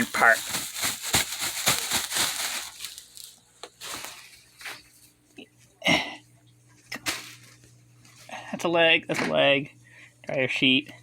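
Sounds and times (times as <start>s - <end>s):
packaging and fabric rustling: 0.0s - 5.1s, 7.0s - 8.3s.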